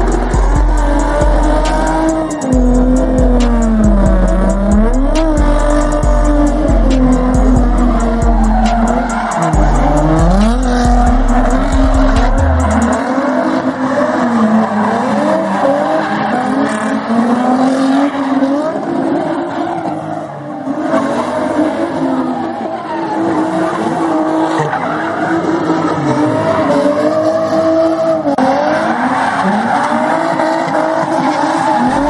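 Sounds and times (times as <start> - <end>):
tyres squealing: 0.0 - 13.1, 28.7 - 32.0
music with heavy bass: 0.0 - 13.3, 31.8 - 32.0
car engine revving: 0.0 - 32.0.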